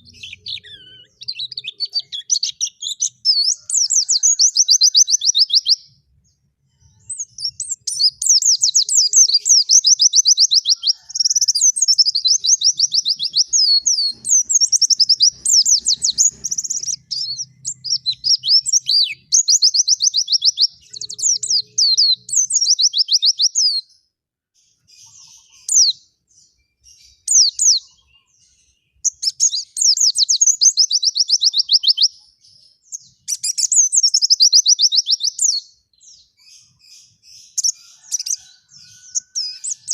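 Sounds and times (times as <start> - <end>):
songbird singing fast trills: 0.0 - 24.0, 24.6 - 39.9.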